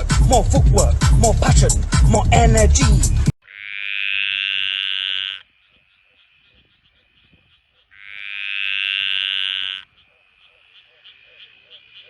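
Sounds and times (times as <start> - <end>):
frog trilling: 3.4 - 12.0.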